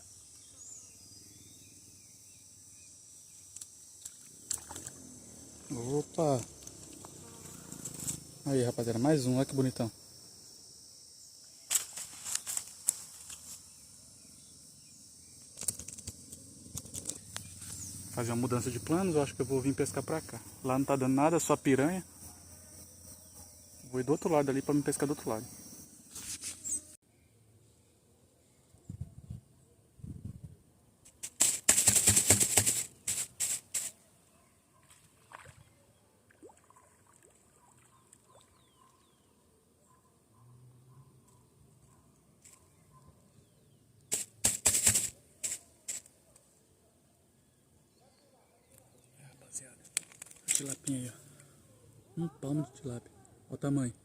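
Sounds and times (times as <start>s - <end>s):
high-pitched insect chorus: 0.0s - 27.0s, 31.1s - 34.0s, 43.4s - 46.2s, 49.4s - 54.0s
handling clicks and rustles: 15.5s - 17.8s, 31.1s - 33.9s, 49.8s - 51.0s
loud rustling and crunching: 31.1s - 33.9s.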